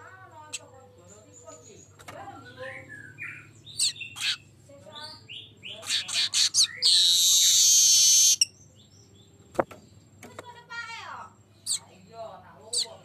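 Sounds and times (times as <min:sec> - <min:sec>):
bird chips and chattering notes: 0:00.5 - 0:08.6.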